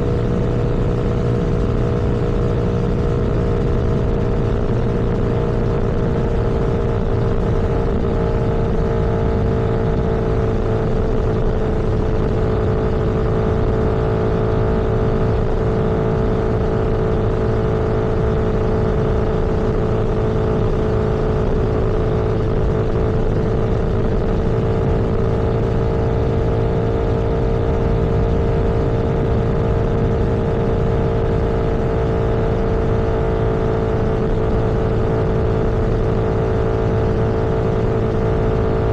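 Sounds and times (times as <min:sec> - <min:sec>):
vehicle engine and road drone: 0:00.0 - 0:38.9.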